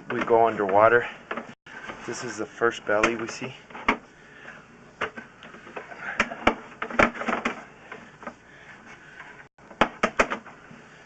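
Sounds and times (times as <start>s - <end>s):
handling clicks and knocks: 0.0s - 1.6s.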